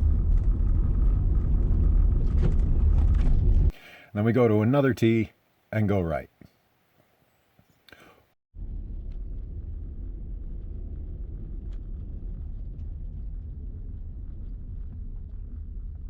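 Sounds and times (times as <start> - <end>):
car tyres rumbling on gravel: 0.0 - 3.7, 8.6 - 16.0.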